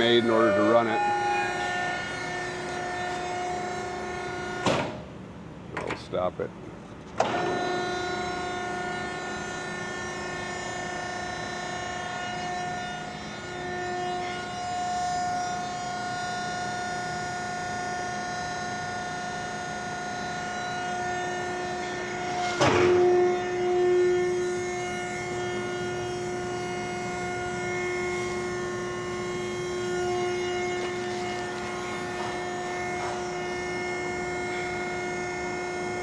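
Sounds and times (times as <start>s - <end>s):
hydraulic pump motor whine: 0.0s - 5.2s, 7.0s - 36.0s
loud clunk: 4.6s - 5.1s, 22.5s - 23.1s.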